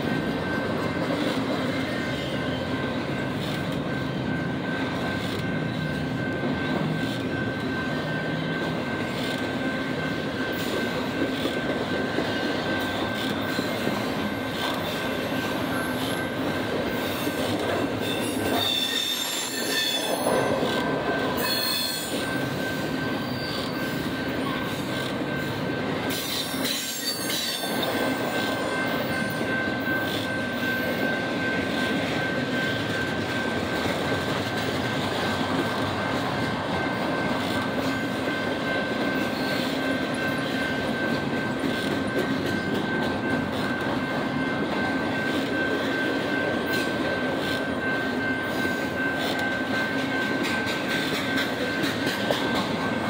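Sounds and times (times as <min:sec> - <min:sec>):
high wheel squeal: 0:16.9 - 0:20.6, 0:21.4 - 0:25.5, 0:26.1 - 0:31.1.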